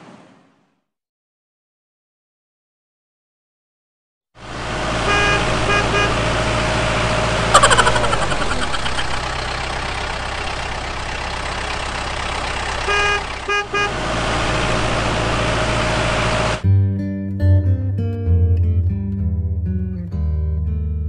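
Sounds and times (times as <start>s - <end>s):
vehicle engine running: 4.4s - 16.6s
loud horn blast: 4.8s - 8.6s, 12.8s - 15.2s
short horn beeps: 5.1s - 6.4s, 12.8s - 14.0s.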